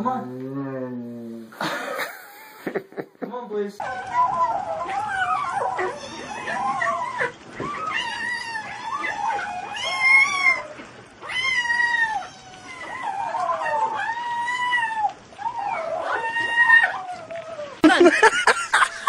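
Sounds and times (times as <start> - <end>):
pet animal yowling: 0.2 - 1.4, 3.8 - 17.8.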